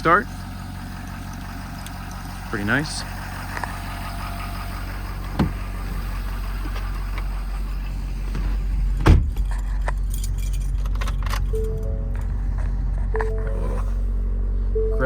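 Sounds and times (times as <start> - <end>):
diesel engine idling: 0.0 - 15.0
door shutting: 8.4 - 9.4.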